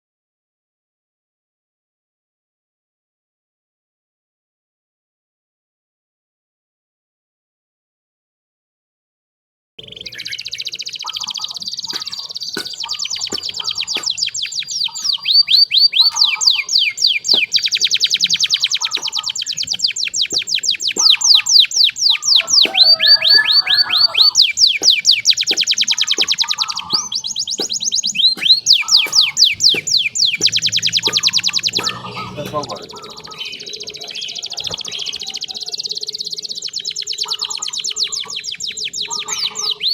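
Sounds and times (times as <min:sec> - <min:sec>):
canary singing trills: 0:09.8 - 0:39.9.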